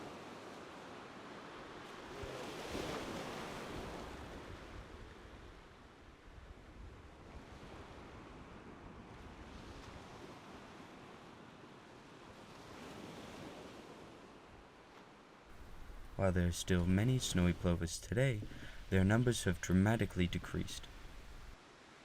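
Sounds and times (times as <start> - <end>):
ocean wave breaking: 15.5 - 21.6
surf wash rushing: 15.6 - 22.0.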